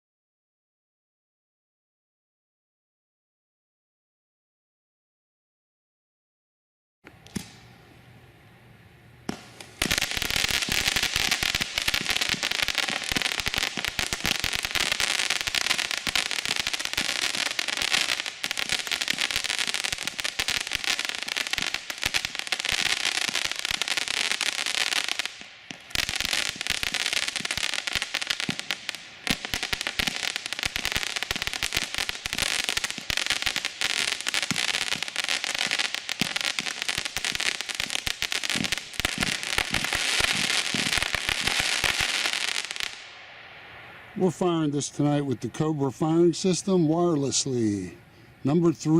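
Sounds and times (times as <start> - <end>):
fireworks crackles and bangs: 9.3 - 45.3.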